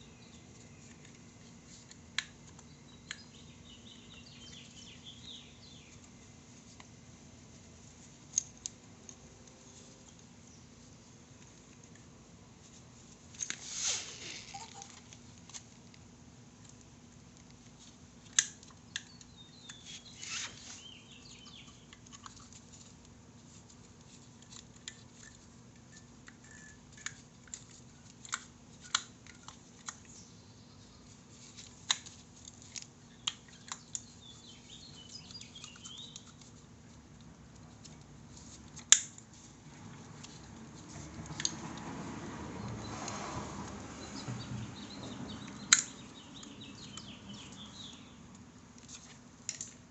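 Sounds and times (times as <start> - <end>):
faint chirping: 14.2 - 15.0, 44.0 - 48.3.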